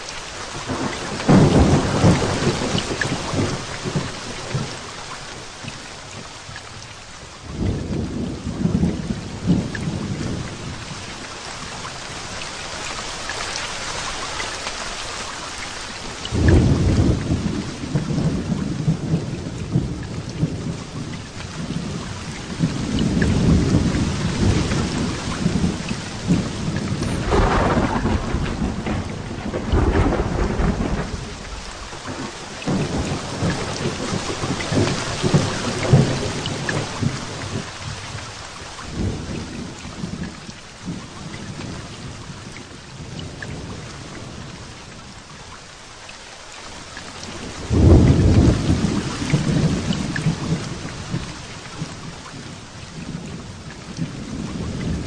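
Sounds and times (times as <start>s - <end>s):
heavy rain falling: 0.0s - 55.0s
thunder rumbling: 0.6s - 4.9s, 16.3s - 45.1s, 47.3s - 55.0s.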